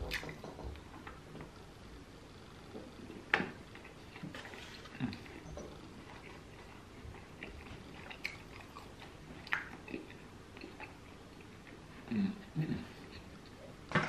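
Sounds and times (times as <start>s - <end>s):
person chewing food: 3.0s - 12.0s.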